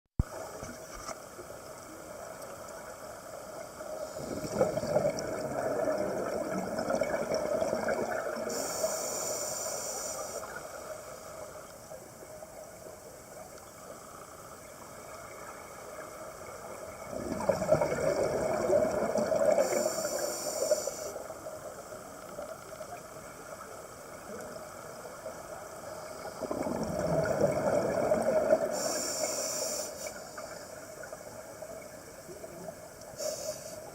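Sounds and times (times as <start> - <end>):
short high hiss: 8.5 - 10.5, 28.7 - 30.6, 33.2 - 33.9.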